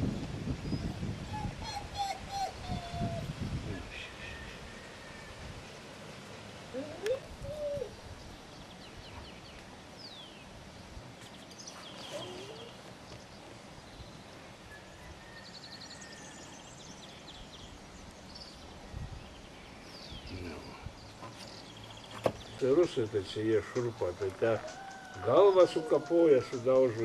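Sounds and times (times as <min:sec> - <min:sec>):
rising bird call: 0:00.7 - 0:05.4, 0:06.7 - 0:08.1
small birds twittering: 0:06.4 - 0:27.0.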